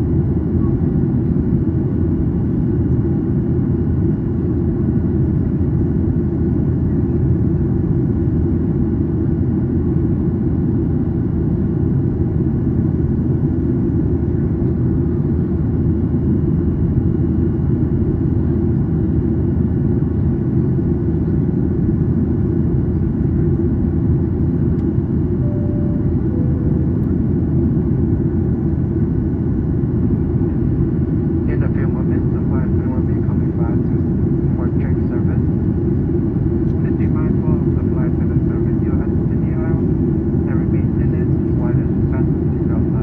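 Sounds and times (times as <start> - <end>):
airplane cabin engine drone: 0.0 - 43.0
faint two-note falling tone: 25.4 - 27.2.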